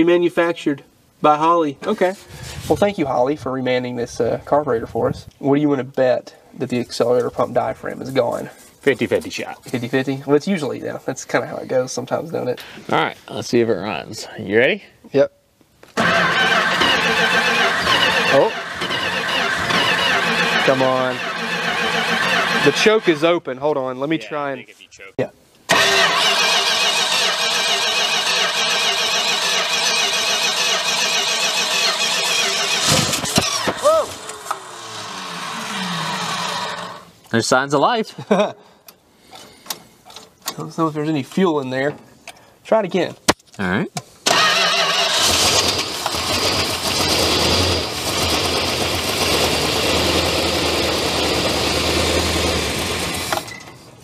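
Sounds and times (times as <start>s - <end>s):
car engine cranking on starter: 16.0s - 23.1s, 25.7s - 37.0s, 44.3s - 53.5s.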